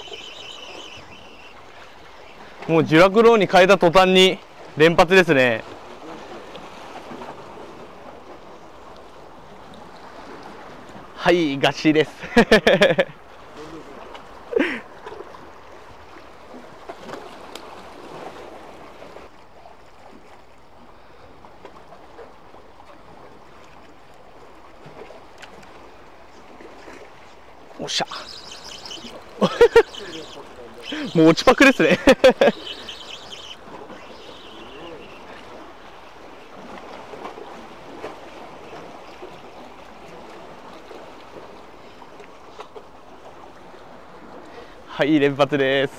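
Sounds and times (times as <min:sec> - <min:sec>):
sea water lapping on concrete: 0:00.0 - 0:11.2, 0:12.0 - 0:45.9
sharp water splashes: 0:26.5 - 0:41.6.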